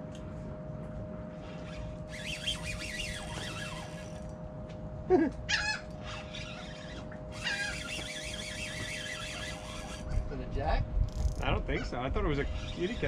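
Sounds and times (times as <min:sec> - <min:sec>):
birds calling: 0:02.1 - 0:04.2, 0:05.4 - 0:10.3.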